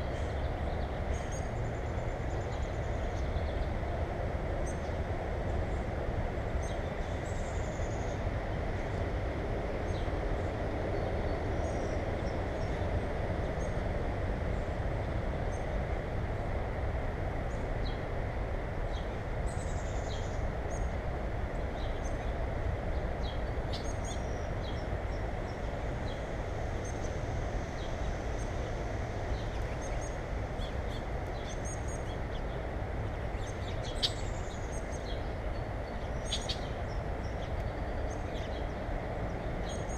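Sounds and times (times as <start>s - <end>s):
small birds chirping: 29.3s - 39.9s.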